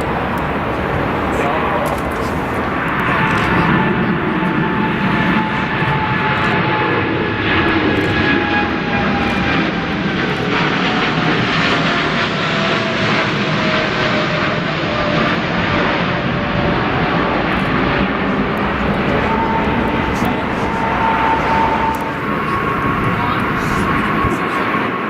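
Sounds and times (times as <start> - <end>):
jet engines roaring: 0.0 - 25.0
engine whine sliding down: 17.5 - 24.7.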